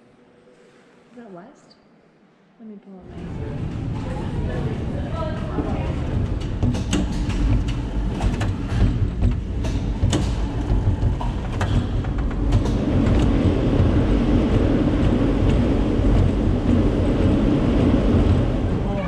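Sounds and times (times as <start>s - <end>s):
small tram rumbling on track: 3.0s - 19.0s
clicks and knocks: 6.1s - 16.8s.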